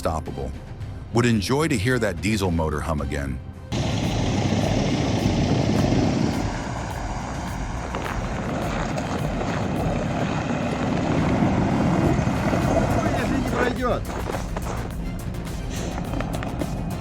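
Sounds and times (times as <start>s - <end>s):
bulldozer diesel engine rumble: 3.7s - 17.0s.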